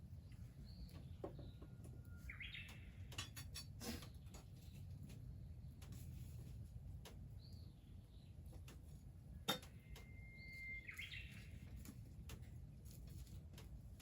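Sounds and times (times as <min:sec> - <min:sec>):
soft bird calls: 0:00.0 - 0:03.3, 0:09.6 - 0:12.1
bird whistle with rising flourish: 0:10.1 - 0:11.4.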